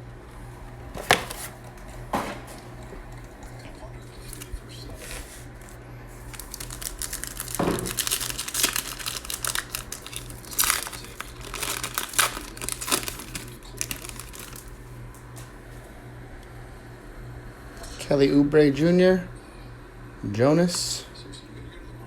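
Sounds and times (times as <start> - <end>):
card pack wrapper tearing and crinkling: 1.0 - 1.6, 4.2 - 14.8.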